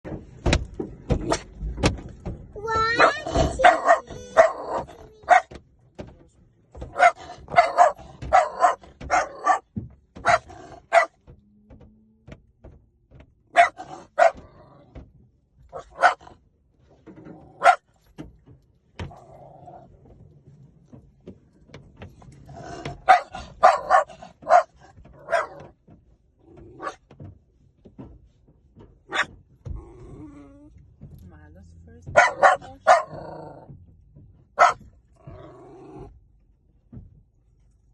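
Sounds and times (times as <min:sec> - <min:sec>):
dog barking: 0:02.9 - 0:05.5, 0:06.8 - 0:11.2, 0:13.5 - 0:14.5, 0:15.7 - 0:16.4, 0:17.6 - 0:17.9, 0:23.0 - 0:25.6, 0:26.8 - 0:27.0, 0:29.1 - 0:29.3, 0:32.1 - 0:33.5, 0:34.6 - 0:34.8.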